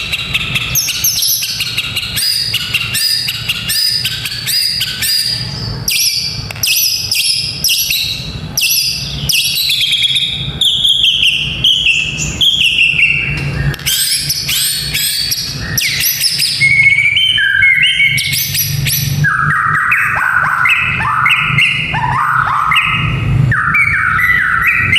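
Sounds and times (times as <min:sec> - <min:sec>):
bird chattering: 0:00.0 - 0:24.9
bird singing repeated notes: 0:00.0 - 0:24.9.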